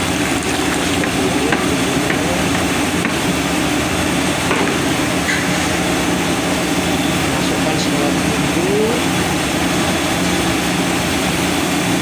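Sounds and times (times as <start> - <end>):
engine-like rumble: 0.0 - 12.0
low hum: 0.0 - 12.0.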